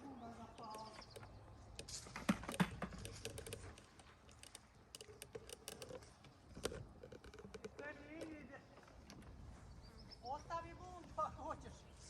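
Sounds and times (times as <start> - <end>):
dry clicks and crackles: 0.4 - 9.4.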